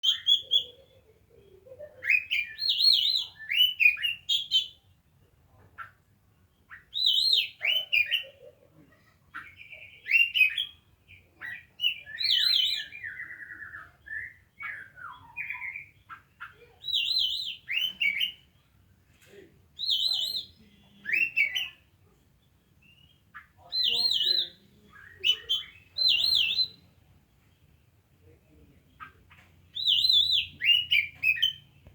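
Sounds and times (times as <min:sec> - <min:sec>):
bird singing whistles and warbles: 0:00.0 - 0:00.8, 0:02.0 - 0:04.8, 0:06.6 - 0:08.3, 0:09.4 - 0:18.5, 0:19.8 - 0:21.9, 0:22.8 - 0:27.0, 0:29.0 - 0:31.9.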